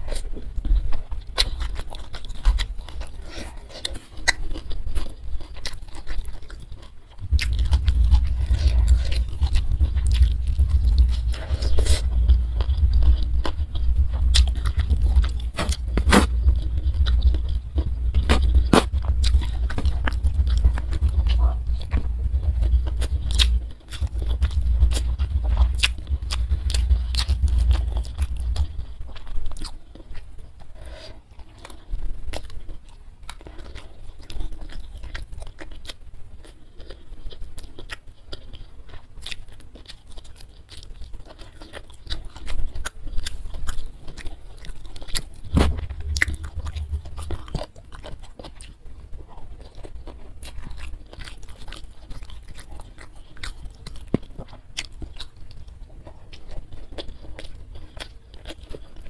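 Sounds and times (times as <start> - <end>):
chewing with crisp crunches: 0.0 - 59.0
heavy low rumbles: 7.2 - 29.7, 44.9 - 48.4.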